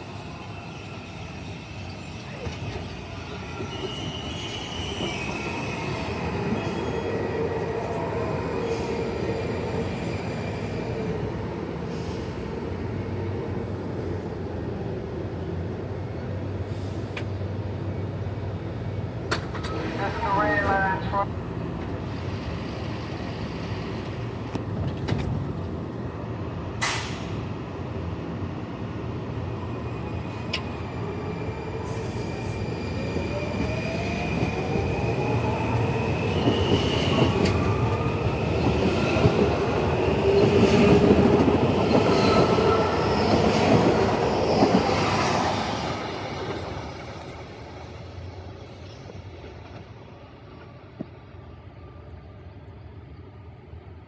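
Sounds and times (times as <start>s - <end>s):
train whine and high squeals: 0.0s - 54.0s
train wheels rumbling on rails: 18.8s - 28.4s, 29.9s - 51.5s.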